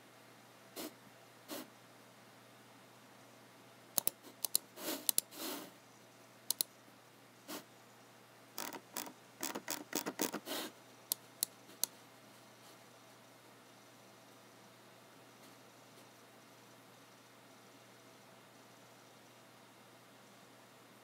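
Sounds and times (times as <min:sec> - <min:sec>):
keyboard keys pressed: 0:04.0 - 0:05.2, 0:08.6 - 0:10.4
computer mouse clicks: 0:04.0 - 0:05.3, 0:06.5 - 0:06.7, 0:08.6 - 0:10.4.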